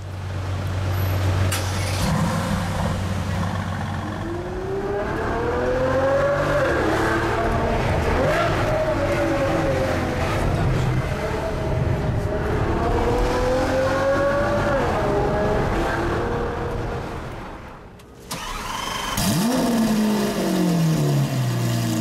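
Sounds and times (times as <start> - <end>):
engine starting with rising flare: 1.5 - 2.9, 18.3 - 20.9
car engine accelerating: 1.5 - 17.3, 18.3 - 22.0.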